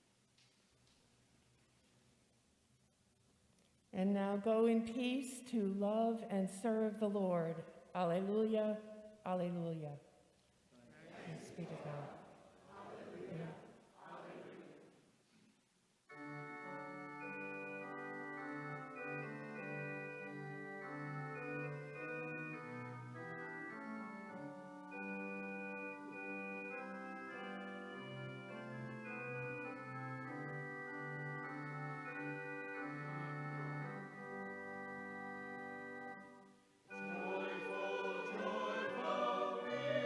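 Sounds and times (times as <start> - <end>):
church organ playing chords: 16.1 - 40.0.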